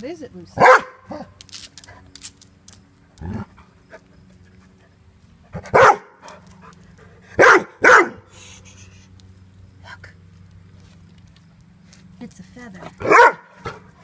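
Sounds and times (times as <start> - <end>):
dog barking: 0.6 - 1.3, 5.6 - 6.2, 7.4 - 8.3, 13.0 - 13.8.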